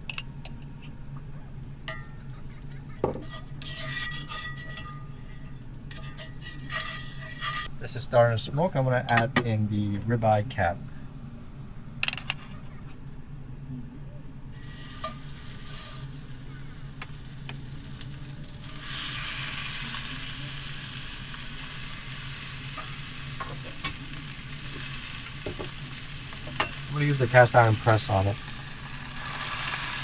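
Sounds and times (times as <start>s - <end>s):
vent fan humming: 7.7s - 30.0s
meat sizzling in a pan: 14.5s - 30.0s.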